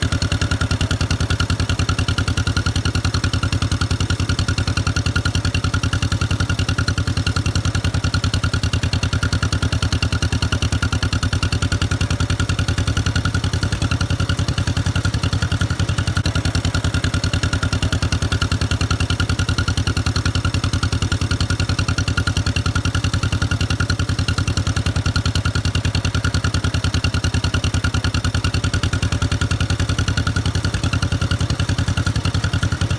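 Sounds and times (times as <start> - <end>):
tractor engine idling: 0.0 - 32.9.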